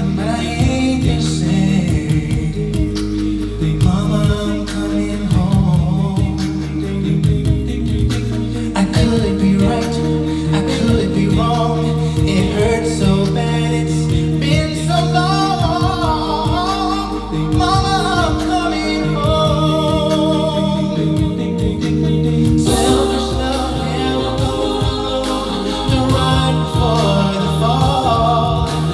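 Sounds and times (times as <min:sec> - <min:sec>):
group of singers: 0:00.0 - 0:28.9.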